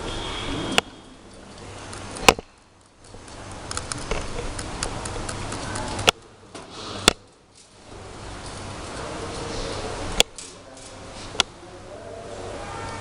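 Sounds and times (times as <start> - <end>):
light ticks and handling noise: 0.8 - 7.8.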